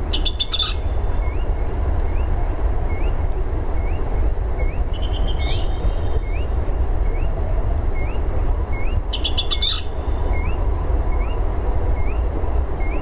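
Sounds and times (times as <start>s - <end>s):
bird trill: 0.1s - 1.4s, 4.6s - 6.5s, 8.8s - 10.6s
bird chirping: 0.1s - 2.3s, 3.8s - 7.3s, 8.0s - 11.4s.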